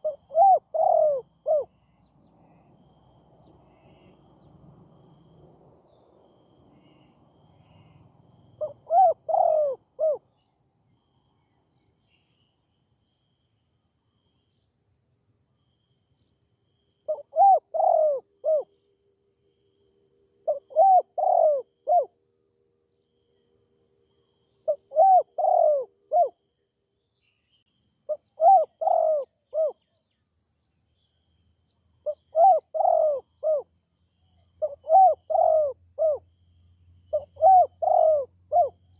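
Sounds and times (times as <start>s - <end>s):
dove cooing: 0.0s - 1.7s, 8.6s - 10.2s, 17.1s - 18.7s, 20.4s - 22.2s, 24.6s - 26.4s, 28.1s - 29.8s, 32.0s - 33.7s, 34.6s - 36.2s, 37.1s - 38.8s.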